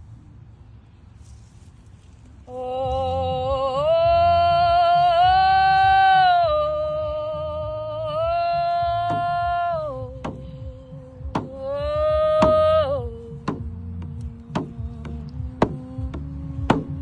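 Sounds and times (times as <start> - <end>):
low rumble: 0.0 - 17.0
sharp knocks: 11.3 - 11.5, 13.4 - 13.7, 14.5 - 17.0.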